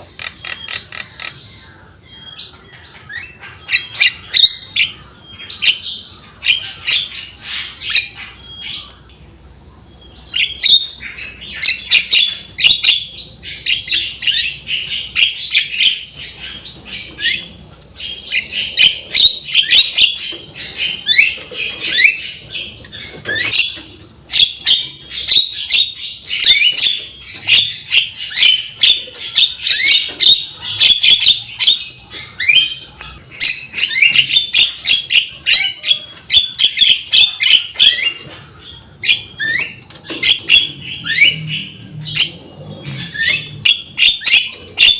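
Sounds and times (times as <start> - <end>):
bird singing chattering and whistles: 10.0 - 44.9.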